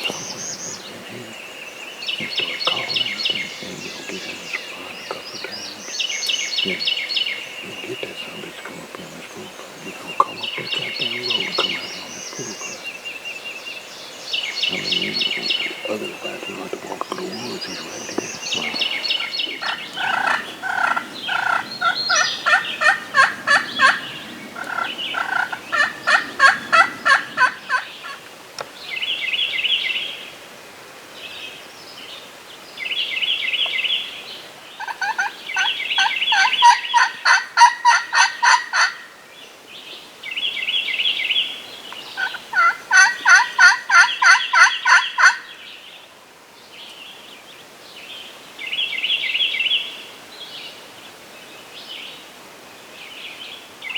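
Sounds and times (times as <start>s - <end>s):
short high bird calls: 0.0s - 13.0s, 14.4s - 28.2s
turkey gobbling: 2.2s - 6.0s, 7.7s - 12.8s, 14.7s - 28.3s, 34.8s - 39.1s, 42.0s - 45.5s.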